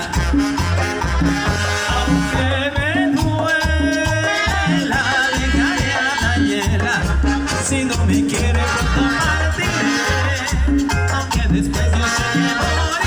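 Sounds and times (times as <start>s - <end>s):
brass chords: 0.0s - 3.4s, 7.0s - 10.9s, 11.7s - 13.0s
bass rhythm: 0.0s - 13.0s
shaken percussion: 0.0s - 13.0s.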